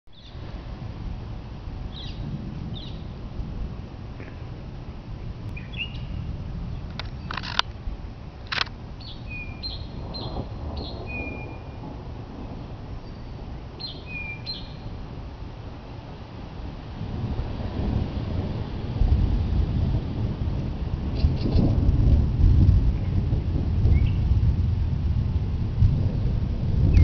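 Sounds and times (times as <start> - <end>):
low outdoor rumble: 0.1 - 27.0
birds chirping: 1.9 - 3.2, 5.5 - 7.6, 9.0 - 11.8, 12.4 - 15.0
sharp clicks: 6.9 - 7.7, 8.5 - 8.8.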